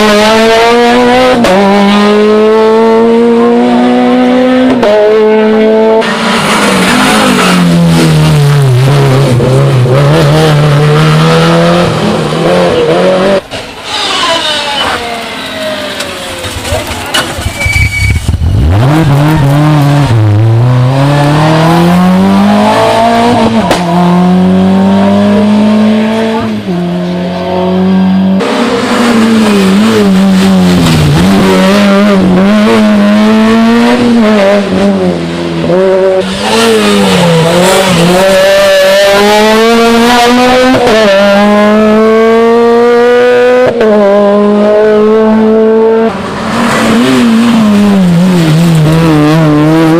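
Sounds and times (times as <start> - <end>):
rally car engines revving: 0.0 - 49.9
tyre squeal: 13.7 - 18.6.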